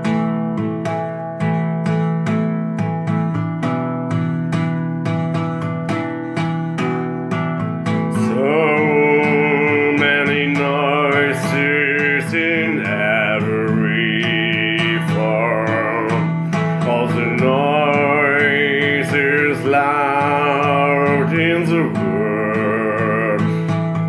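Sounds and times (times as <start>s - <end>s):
acoustic guitar strummed: 0.0s - 24.0s
man singing: 7.9s - 24.0s.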